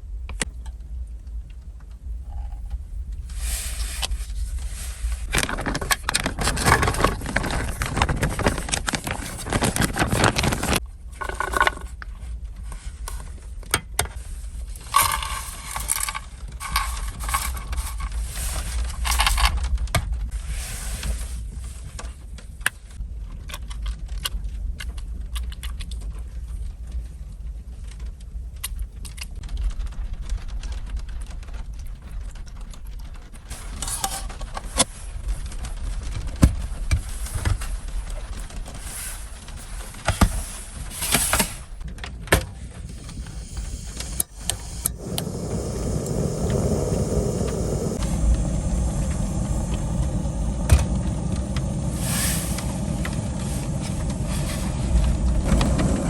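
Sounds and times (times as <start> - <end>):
small objects clinking and scraping: 3.3 - 12.1, 14.2 - 21.4
steady low rumble: 41.6 - 56.0.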